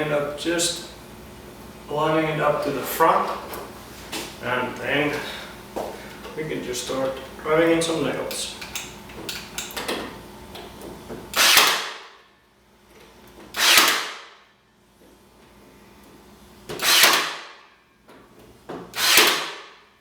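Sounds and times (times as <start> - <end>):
nail gun firing: 11.3 - 12.2, 13.6 - 14.4, 16.8 - 17.6, 19.0 - 19.8.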